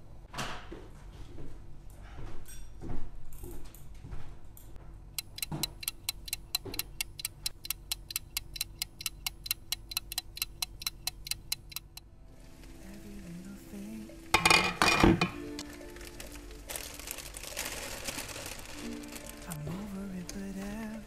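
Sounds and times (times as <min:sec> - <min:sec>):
rapid mechanical clicking: 0:05.2 - 0:12.0.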